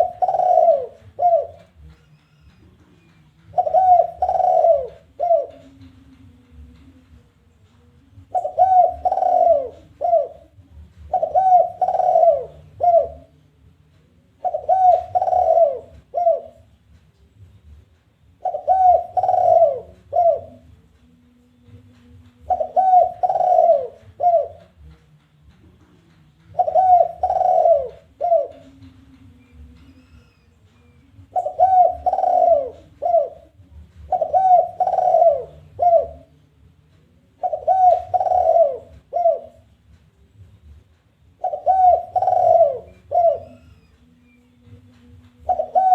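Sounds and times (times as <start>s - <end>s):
dove cooing: 0.0s - 6.1s, 8.2s - 13.4s, 14.4s - 16.8s, 18.4s - 20.7s, 22.4s - 24.9s, 26.5s - 30.4s, 31.1s - 36.4s, 37.4s - 39.8s, 41.4s - 44.0s, 45.3s - 45.9s.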